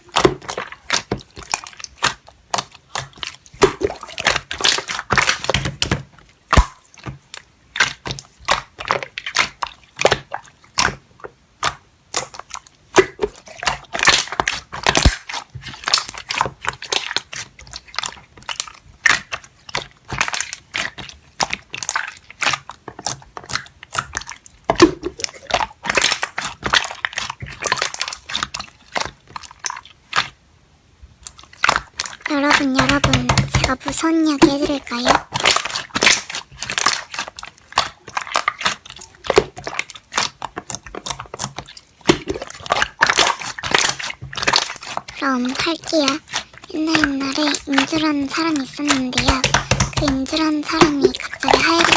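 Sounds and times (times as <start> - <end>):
slime squished by hand: 0.0 - 30.4, 31.2 - 51.9.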